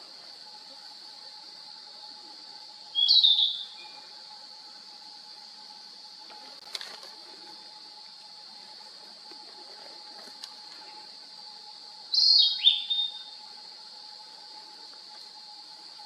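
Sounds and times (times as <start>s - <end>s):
bird singing whistled notes: 2.9s - 4.2s, 12.1s - 13.4s.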